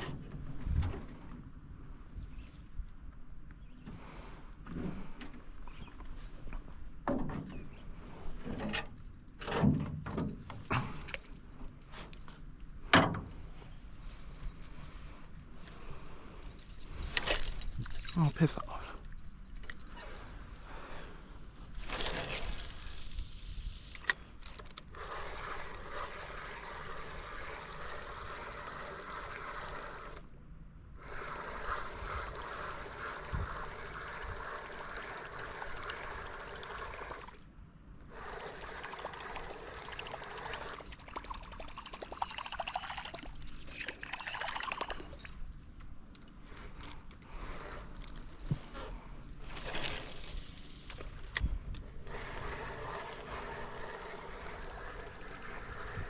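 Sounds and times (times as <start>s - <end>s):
water trickling and splashing: 38.2s - 45.4s.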